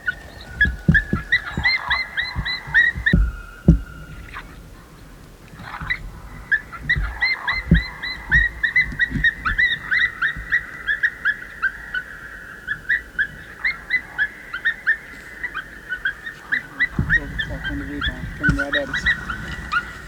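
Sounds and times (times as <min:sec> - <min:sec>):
soft low thumps: 0:00.0 - 0:10.8, 0:16.7 - 0:20.0.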